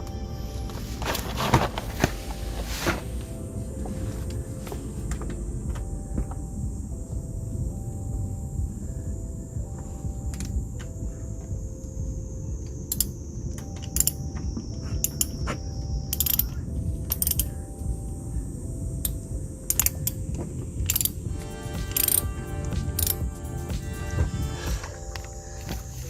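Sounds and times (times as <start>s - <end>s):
ratchet wrench clicking: 12.9s - 13.1s, 16.1s - 16.5s, 20.9s - 21.2s.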